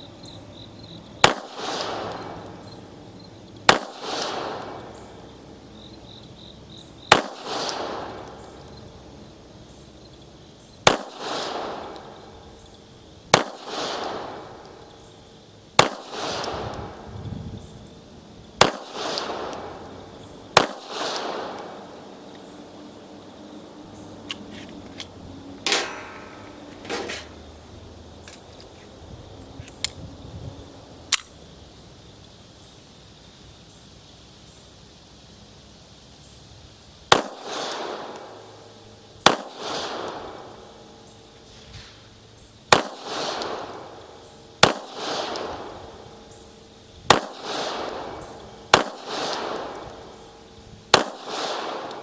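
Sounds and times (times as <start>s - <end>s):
pistol shots with echo: 1.2s - 2.8s, 3.7s - 5.3s, 7.0s - 9.2s, 10.8s - 12.7s, 13.3s - 15.0s, 15.8s - 17.1s, 18.6s - 22.6s, 25.6s - 27.4s, 37.1s - 38.6s, 39.2s - 40.9s, 42.7s - 52.0s.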